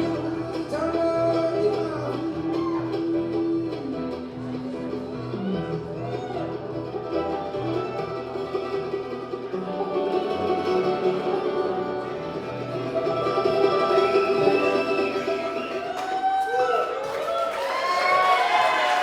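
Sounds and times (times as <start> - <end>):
bluegrass band plucked strings: 0.0 - 17.0.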